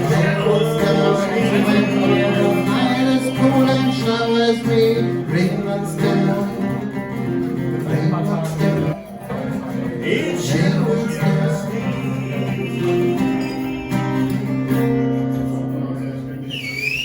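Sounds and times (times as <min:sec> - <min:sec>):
person singing: 0:00.0 - 0:14.1
country band music: 0:00.0 - 0:17.0
guitar: 0:00.0 - 0:17.0.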